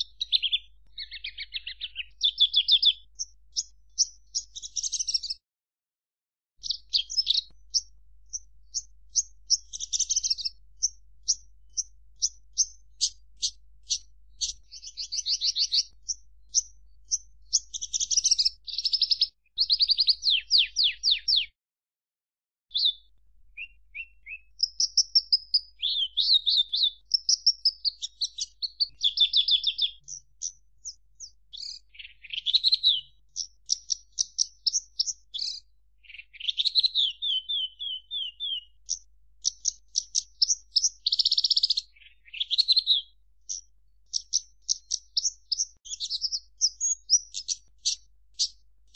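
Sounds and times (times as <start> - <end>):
lark singing: 0.0 - 5.4, 6.6 - 21.5, 22.7 - 48.6.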